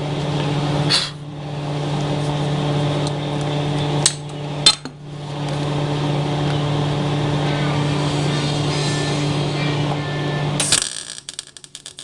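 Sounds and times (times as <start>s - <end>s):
welder hiss and hum: 7.1s - 11.2s.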